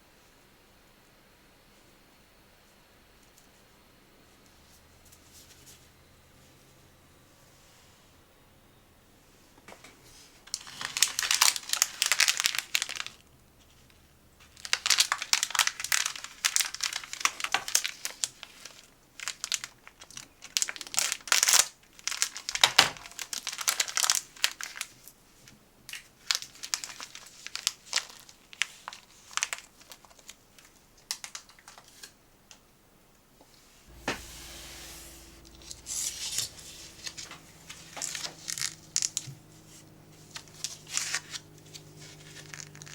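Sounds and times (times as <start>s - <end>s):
snack packaging crinkling and tearing: 10.5s - 13.2s, 14.5s - 24.9s, 26.2s - 32.1s, 37.0s - 42.9s
faint low hum: 33.9s - 42.9s.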